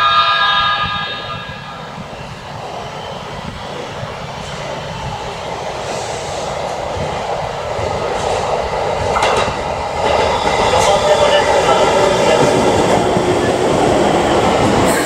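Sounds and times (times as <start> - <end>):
electric train rumbling on tracks: 0.0 - 15.0
train wheel clacks: 8.0 - 15.0.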